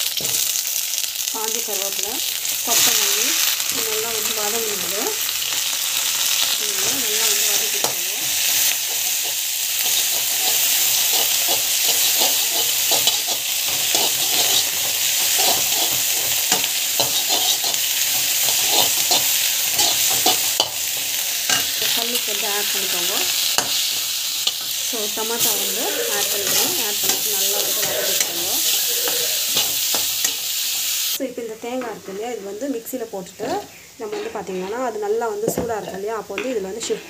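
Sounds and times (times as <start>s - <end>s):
vegetables sizzling in oil: 0.0s - 37.0s
metal spatula scraping pan: 6.4s - 30.5s.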